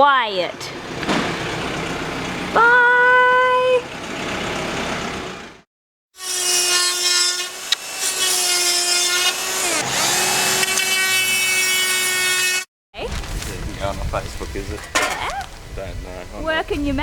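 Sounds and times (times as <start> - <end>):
power tool whining: 6.2 - 12.7.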